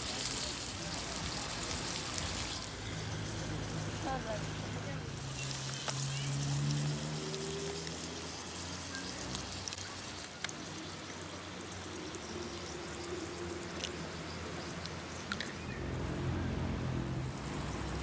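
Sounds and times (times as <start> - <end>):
sharp crackles: 0.0 - 3.4, 5.2 - 11.2
food sizzling in a pan: 0.0 - 15.7.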